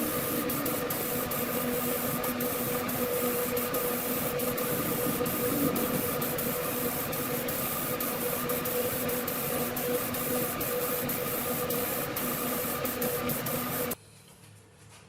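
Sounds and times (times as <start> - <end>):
machine humming and hissing: 0.0 - 14.0.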